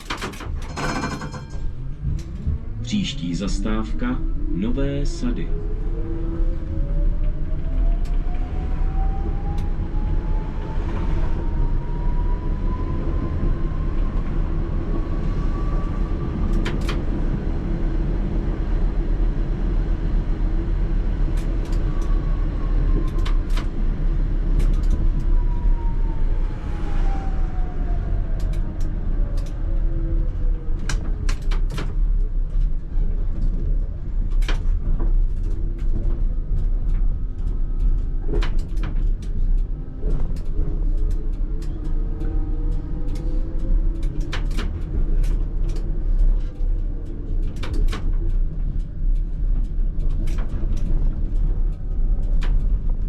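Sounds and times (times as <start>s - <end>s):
track clicks and clacks: 0.0s - 5.5s, 7.2s - 11.2s, 13.2s - 18.9s, 20.0s - 53.0s
wheels rumbling on rail: 0.0s - 53.0s.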